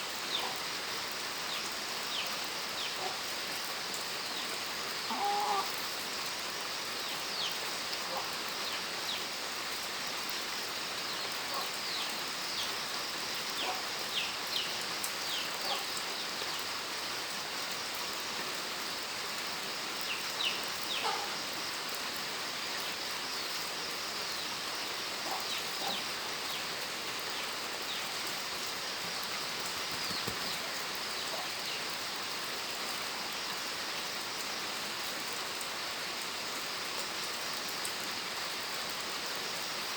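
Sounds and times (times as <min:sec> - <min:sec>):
steady rain falling: 0:00.0 - 0:39.9
short bird calls: 0:05.1 - 0:05.7.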